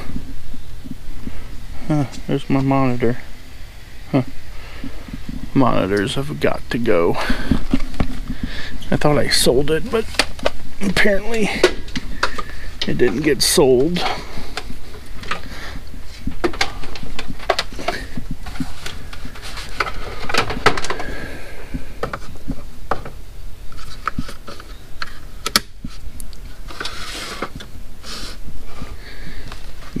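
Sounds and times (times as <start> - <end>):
steady low hum: 0.0 - 30.0
objects clicking and clattering: 16.3 - 21.2.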